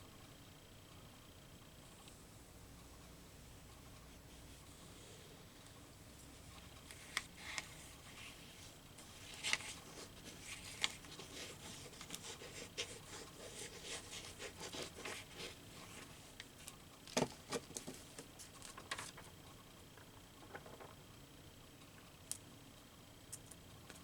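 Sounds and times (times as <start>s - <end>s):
paper rustling and rubbing: 6.8s - 19.3s.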